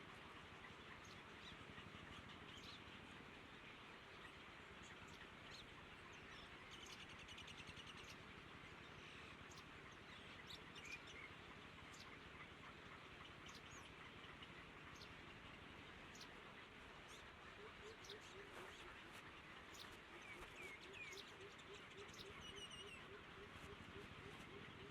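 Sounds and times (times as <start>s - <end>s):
steady low hiss: 8.2s - 24.9s.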